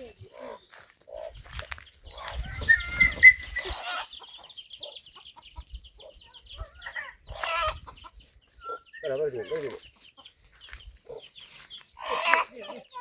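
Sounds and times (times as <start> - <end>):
chicken squawking and clucking: 0.3 - 10.3, 12.0 - 13.0
rustling: 8.2 - 12.0.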